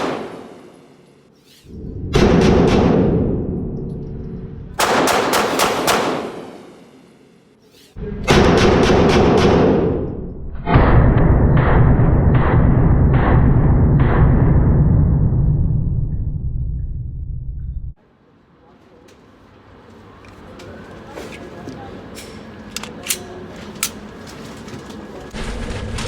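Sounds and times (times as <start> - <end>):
pistol shots indoors: 0.0 - 0.7, 2.1 - 3.7, 4.8 - 7.0, 8.2 - 14.7
low rumble with regular thump: 8.2 - 18.0.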